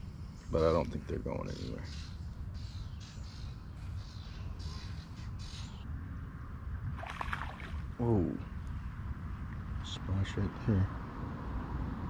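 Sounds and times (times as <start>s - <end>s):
fish splashing in pond: 7.0s - 8.0s.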